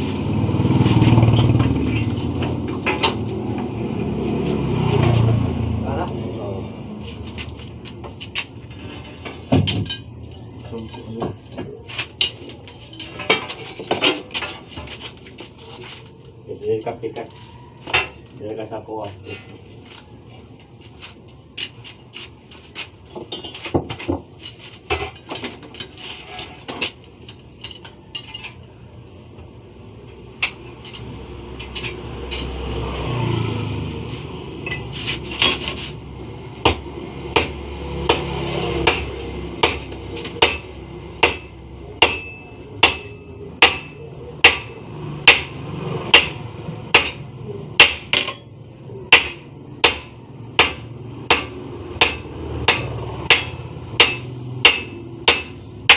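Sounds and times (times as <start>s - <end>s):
hammer striking metal on anvil: 36.6s - 55.9s.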